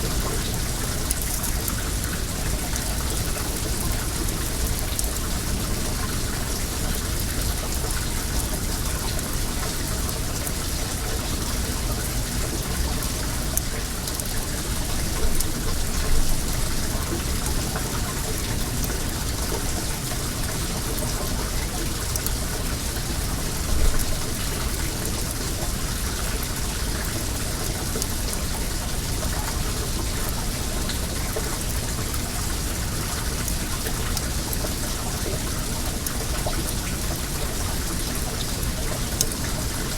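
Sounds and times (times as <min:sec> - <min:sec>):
water running and splashing: 0:00.0 - 0:39.9
bonfire crackling: 0:00.1 - 0:05.3.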